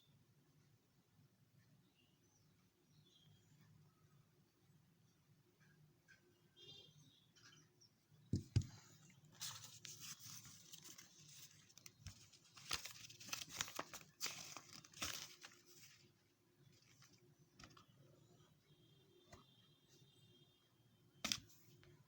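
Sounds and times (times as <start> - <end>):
packaging crinkling and tearing: 9.5 - 16.0.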